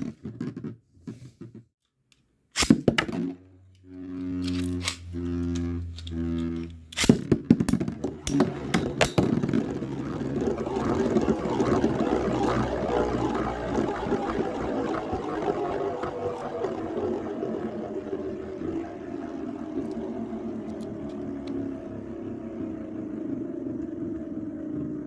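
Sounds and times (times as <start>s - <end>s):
spinning tops whirring rattle: 4.1s - 22.1s.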